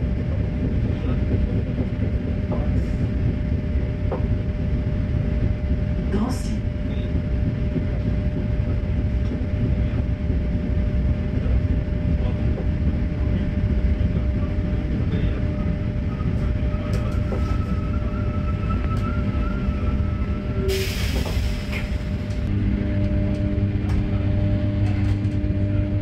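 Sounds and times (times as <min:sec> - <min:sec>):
train interior rumble: 0:00.0 - 0:26.0.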